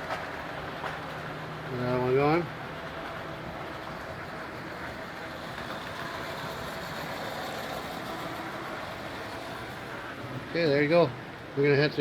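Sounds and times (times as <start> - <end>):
model train running on track: 0.0 - 12.0.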